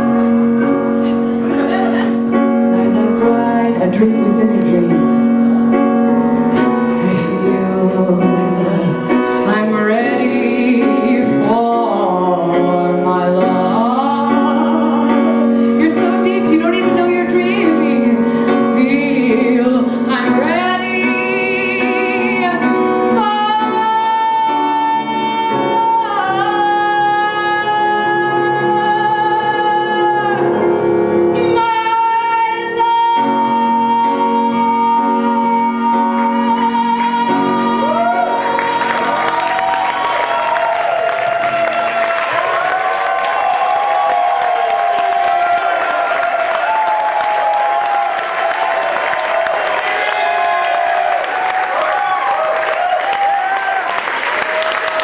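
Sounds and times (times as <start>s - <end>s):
piano: 0.0s - 55.0s
woman singing a slow ballad: 2.6s - 5.5s, 6.9s - 39.1s.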